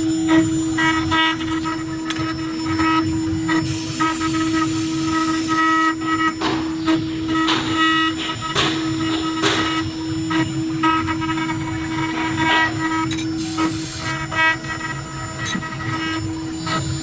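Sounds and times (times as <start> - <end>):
hiss: 3.6 - 5.9, 13.4 - 14.2.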